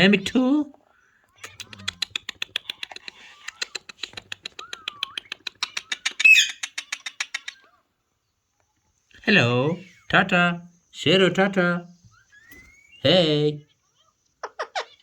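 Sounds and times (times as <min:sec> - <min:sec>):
parakeet clicking: 0:01.3 - 0:07.6
parakeet squawk: 0:05.6 - 0:07.8, 0:13.9 - 0:15.0.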